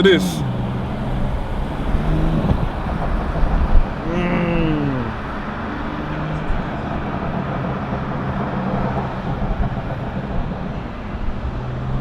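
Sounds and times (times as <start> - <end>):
car engine drone: 0.0 - 12.0.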